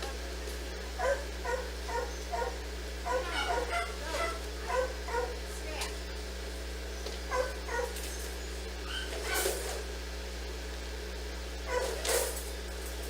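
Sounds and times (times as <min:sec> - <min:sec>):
steady low hum: 0:00.0 - 0:13.0
dog barking and yipping: 0:01.0 - 0:05.4, 0:07.3 - 0:08.2, 0:08.9 - 0:09.6, 0:11.7 - 0:12.4.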